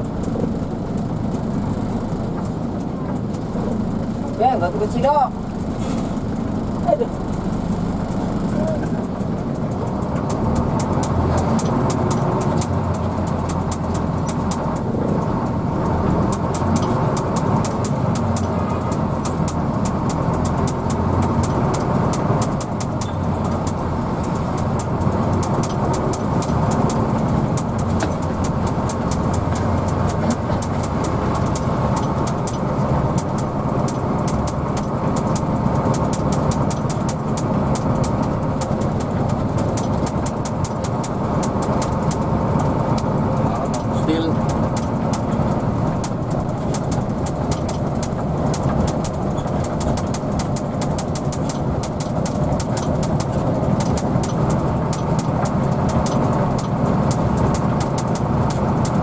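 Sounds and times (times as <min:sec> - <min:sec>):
bus engine running: 0:00.0 - 0:59.0.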